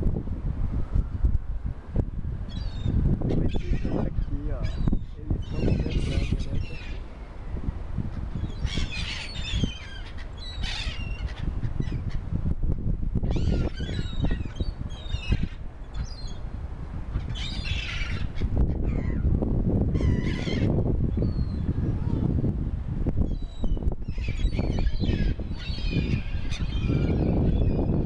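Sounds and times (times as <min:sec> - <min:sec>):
birds squawking: 0:02.5 - 0:07.0, 0:08.4 - 0:12.2, 0:13.3 - 0:16.4, 0:17.2 - 0:19.2, 0:20.0 - 0:20.7, 0:24.2 - 0:27.9.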